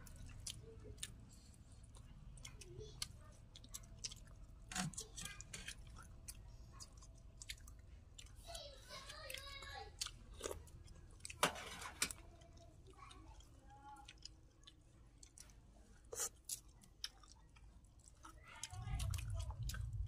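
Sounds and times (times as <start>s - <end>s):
people chewing: 0.0s - 20.0s.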